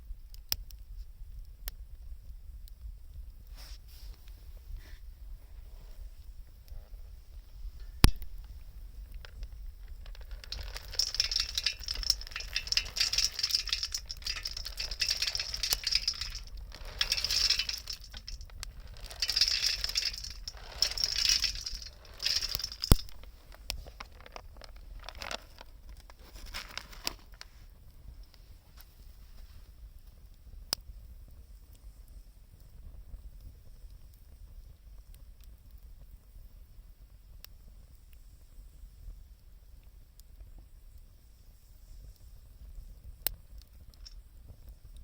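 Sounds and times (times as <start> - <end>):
wood fire crackling: 4.0 - 28.5.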